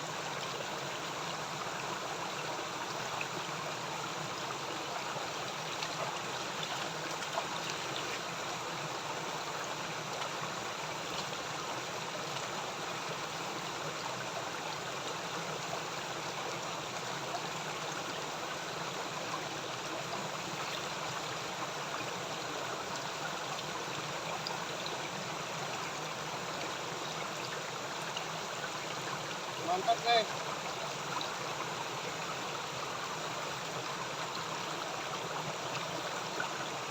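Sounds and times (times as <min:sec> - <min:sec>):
river cascade rushing: 0:25.8 - 0:36.9.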